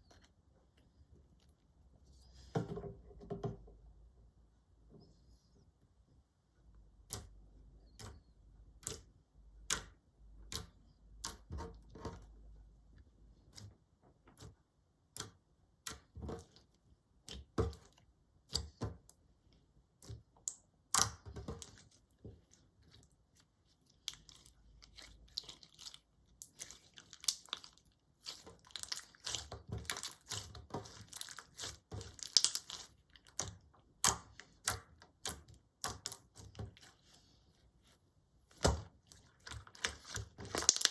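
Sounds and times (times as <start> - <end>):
slime popping and clicking: 32.1 - 36.2, 39.4 - 40.9.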